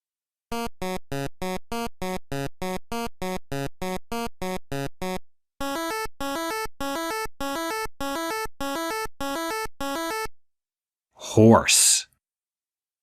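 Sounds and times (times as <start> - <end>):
chiptune synthesizer music: 0.5 - 10.4.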